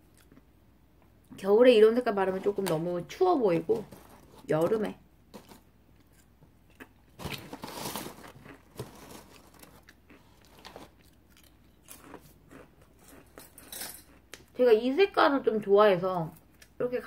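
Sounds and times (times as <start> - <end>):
crisp snack crunching: 3.8 - 14.5.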